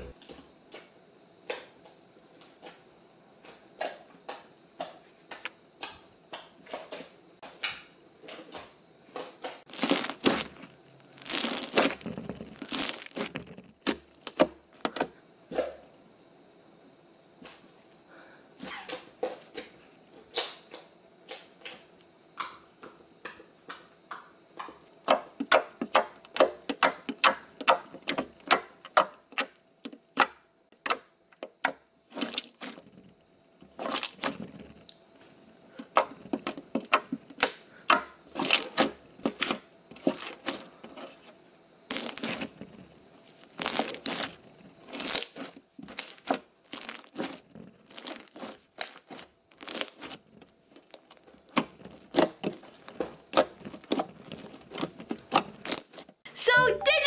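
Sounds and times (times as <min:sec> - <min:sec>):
slime squelching and popping: 0:09.7 - 0:14.4, 0:35.9 - 0:40.7, 0:41.9 - 0:42.5, 0:43.4 - 0:56.1.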